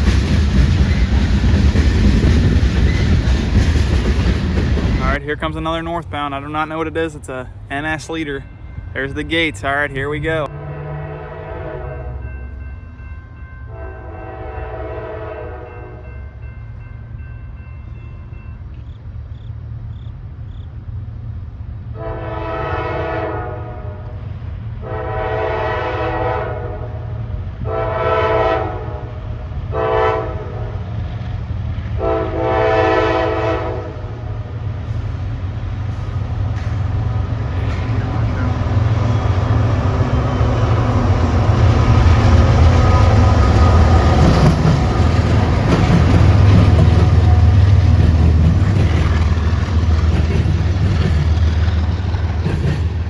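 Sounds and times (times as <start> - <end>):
low rumble of passing train: 0.0 - 53.0
locomotive horn blasts: 10.5 - 12.4, 13.7 - 16.0, 22.0 - 24.2, 24.8 - 27.0, 27.6 - 30.8, 32.0 - 34.0.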